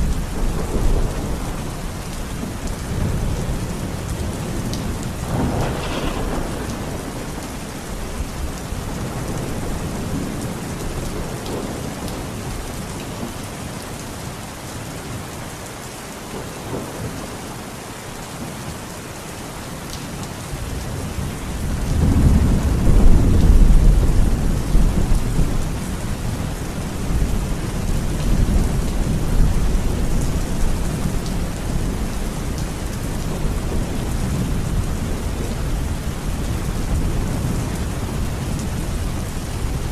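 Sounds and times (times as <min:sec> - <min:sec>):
low roll of thunder: 0:00.0 - 0:12.6, 0:20.6 - 0:39.9
steady rain falling: 0:00.0 - 0:39.9.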